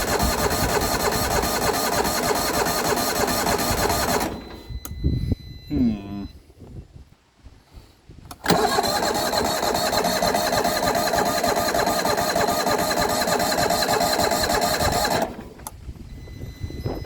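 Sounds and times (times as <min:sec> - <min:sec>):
tractor engine cranking: 0:00.0 - 0:04.9, 0:08.3 - 0:15.9.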